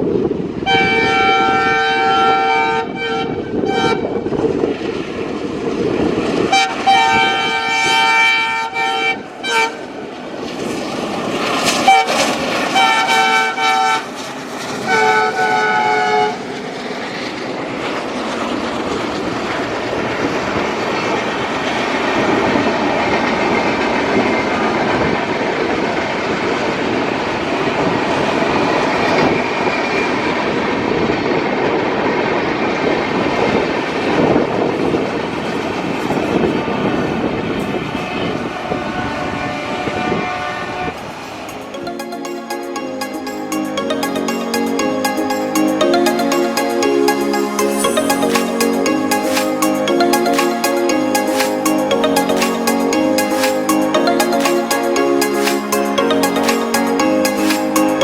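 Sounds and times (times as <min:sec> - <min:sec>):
locomotive horn blasts: 0:00.6 - 0:04.3, 0:06.5 - 0:09.9, 0:11.7 - 0:14.1, 0:14.9 - 0:16.4
train rolling clickety-clack: 0:03.8 - 0:40.3.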